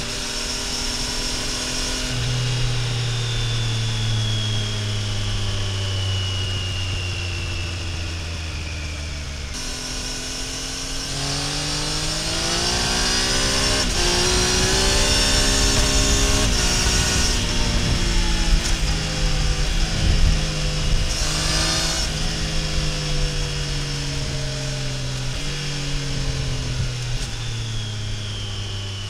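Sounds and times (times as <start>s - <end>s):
motorcycle engine accelerating: 0.0s - 29.0s
motorcycle upshifts: 9.5s - 24.3s.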